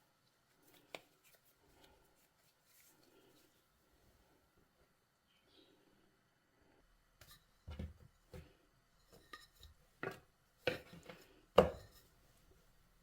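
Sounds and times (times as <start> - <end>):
kitchen items knocking: 10.0 - 11.9.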